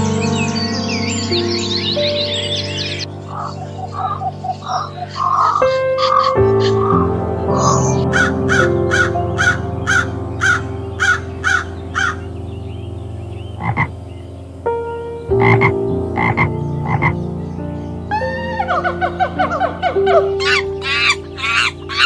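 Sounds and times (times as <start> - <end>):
background music of held tones: 0.0 - 22.0
frog croaking: 1.9 - 17.3.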